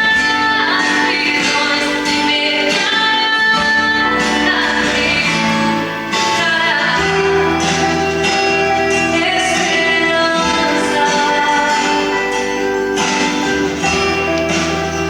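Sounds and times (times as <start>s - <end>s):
gospel song with sung vocals: 0.0s - 15.0s
guitar: 0.0s - 15.0s.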